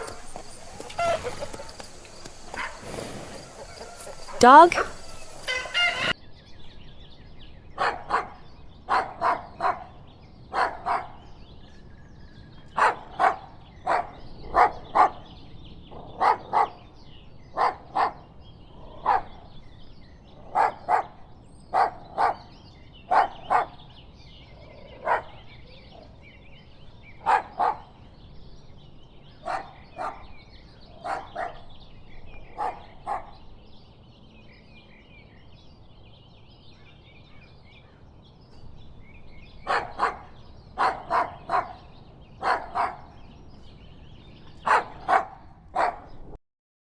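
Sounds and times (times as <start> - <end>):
dog barking: 0.0 - 6.1, 7.8 - 9.9, 10.5 - 11.2, 12.8 - 15.3, 16.2 - 16.8, 17.6 - 18.2, 19.0 - 19.3, 20.5 - 22.5, 23.1 - 23.8, 25.0 - 25.5, 27.2 - 28.0, 29.4 - 30.2, 31.0 - 31.7, 32.6 - 33.4, 39.6 - 43.2, 44.6 - 46.2.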